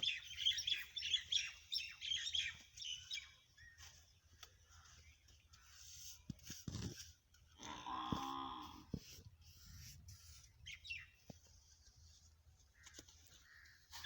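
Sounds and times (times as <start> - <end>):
small birds chirping: 0.0 - 7.1, 10.2 - 14.0.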